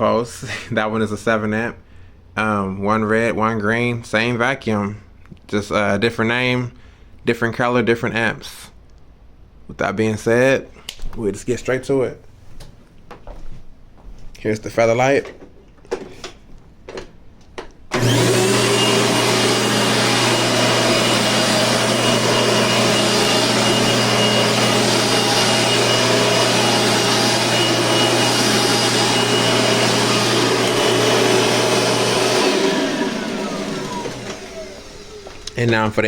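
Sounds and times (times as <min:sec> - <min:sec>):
vacuum cleaner motor whine: 0:17.9 - 0:35.7.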